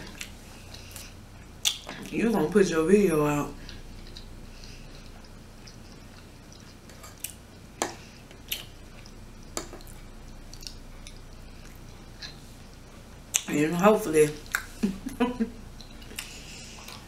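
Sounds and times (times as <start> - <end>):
close chewing: 3.6 - 13.5, 14.4 - 17.0.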